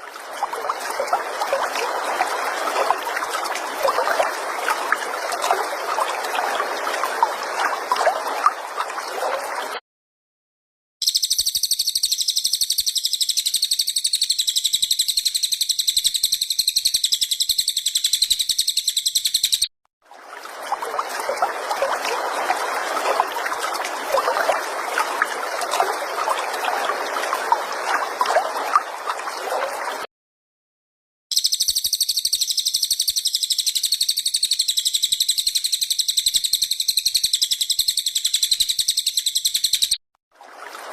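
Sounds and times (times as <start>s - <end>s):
fast songbird trill: 11.0s - 19.7s, 31.3s - 40.0s.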